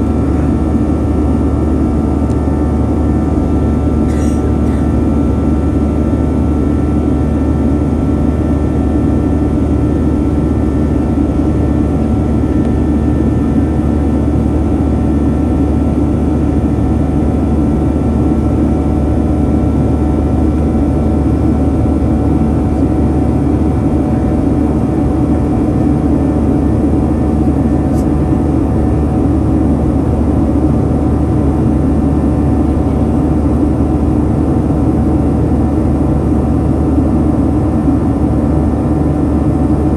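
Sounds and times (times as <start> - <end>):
jet engines droning: 0.0 - 39.9.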